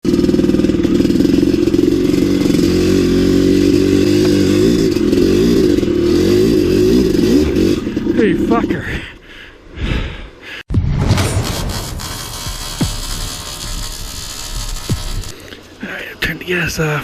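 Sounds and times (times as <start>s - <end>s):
motorcycle engine revving: 0.0s - 8.8s, 11.4s - 15.8s.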